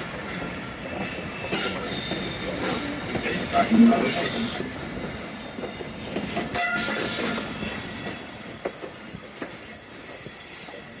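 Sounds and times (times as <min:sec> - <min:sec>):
train coaches rolling: 0:00.0 - 0:11.0
wheel squeal: 0:06.2 - 0:11.0.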